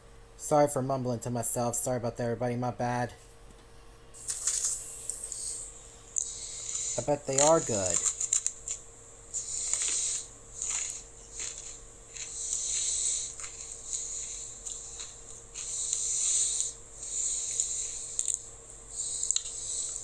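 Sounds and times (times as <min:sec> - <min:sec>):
faint steady hum: 0:00.0 - 0:20.0
heavy breathing through nose: 0:05.2 - 0:07.1, 0:09.3 - 0:20.0.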